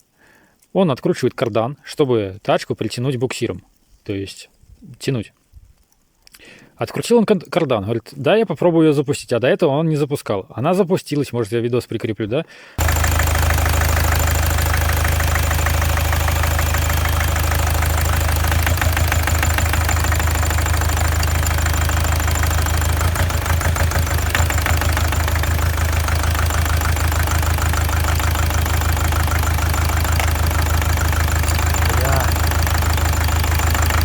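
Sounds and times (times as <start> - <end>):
diesel engine idling: 12.8 - 34.0.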